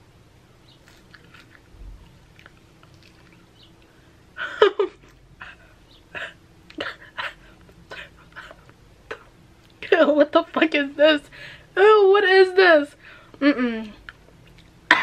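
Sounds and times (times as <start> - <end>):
person chewing crunchy food: 0.7 - 4.0.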